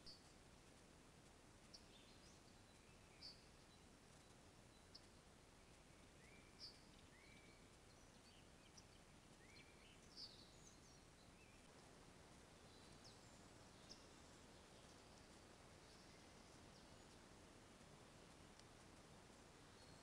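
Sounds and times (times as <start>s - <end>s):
faint steady hiss: 0.0s - 20.0s
faint bird chirps: 1.6s - 11.7s, 12.6s - 17.3s, 19.7s - 20.0s.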